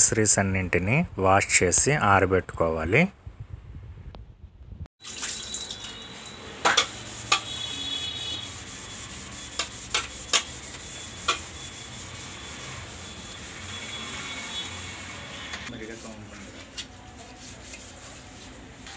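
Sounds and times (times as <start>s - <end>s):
scrubbing by hand: 15.7s - 18.8s.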